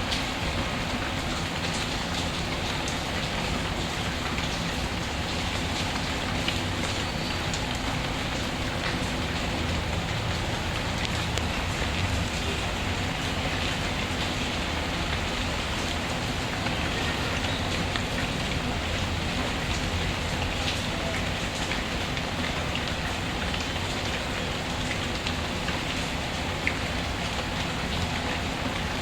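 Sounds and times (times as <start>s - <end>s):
steady rainfall: 0.0s - 29.0s.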